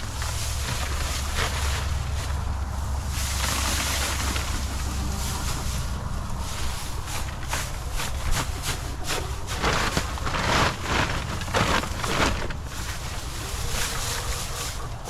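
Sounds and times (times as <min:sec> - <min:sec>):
wind rumble on microphone: 0:00.0 - 0:15.0
material rustling and crackling: 0:03.0 - 0:14.8.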